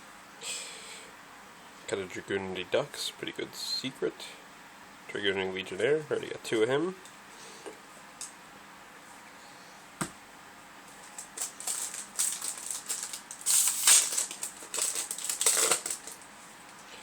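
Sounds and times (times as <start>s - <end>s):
foil wrapper crinkling: 11.0s - 16.3s.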